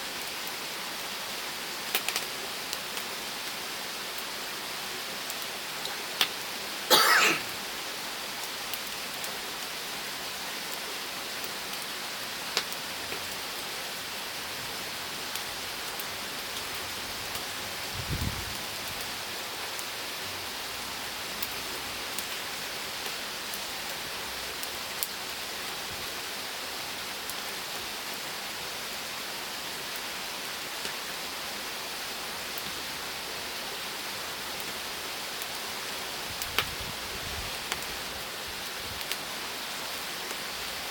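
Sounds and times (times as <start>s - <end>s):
wood fire crackling: 1.8s - 4.4s, 11.4s - 13.8s, 34.3s - 40.9s.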